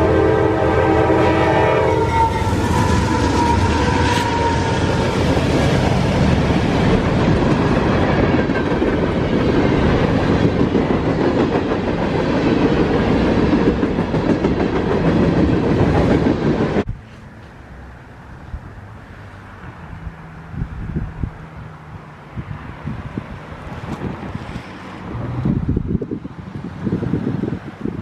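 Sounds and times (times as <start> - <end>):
train horn blast: 0.0 - 5.4
train wheels rumbling on rail: 0.0 - 28.0.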